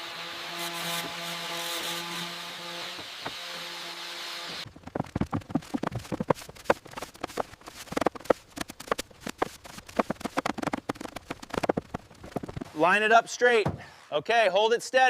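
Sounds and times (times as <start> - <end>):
wooden knocks and clatter: 4.6 - 12.8.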